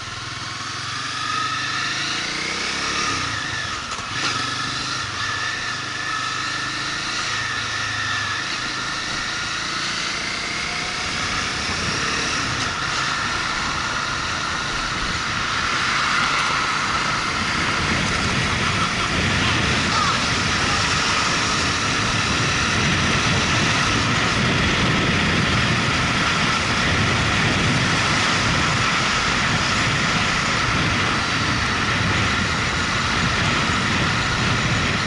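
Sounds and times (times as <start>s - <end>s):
motorcycle engine running: 0.0s - 35.0s
road noise: 0.0s - 35.0s
wind noise: 10.6s - 35.0s.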